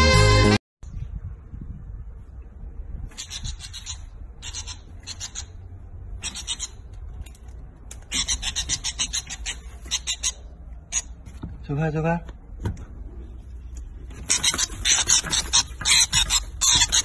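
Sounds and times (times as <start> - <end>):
steady low rumble: 0.8 - 14.1
small bird chirping rapidly: 3.0 - 7.3, 8.0 - 11.2, 14.2 - 17.0.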